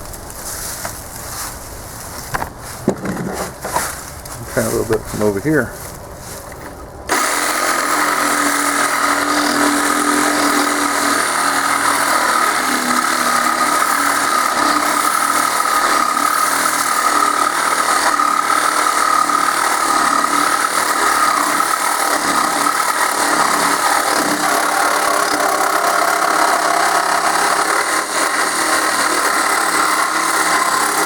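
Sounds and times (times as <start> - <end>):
reciprocating saw cutting metal: 7.1 - 31.0.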